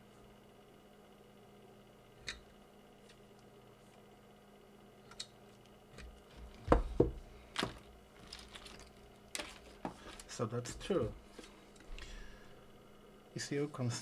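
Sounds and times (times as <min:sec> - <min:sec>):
solid knocks on workbench: 0:06.6 - 0:07.8.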